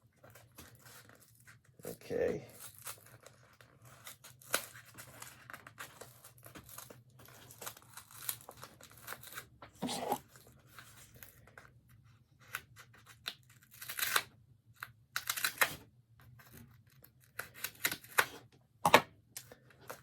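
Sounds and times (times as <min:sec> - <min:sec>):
cardboard tearing and scraping: 0:02.2 - 0:10.5.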